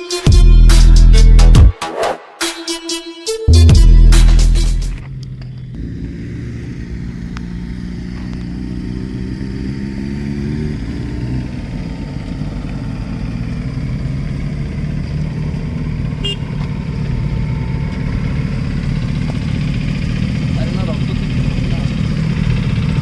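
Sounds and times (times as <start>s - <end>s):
motorcycle engine running: 3.7s - 23.0s.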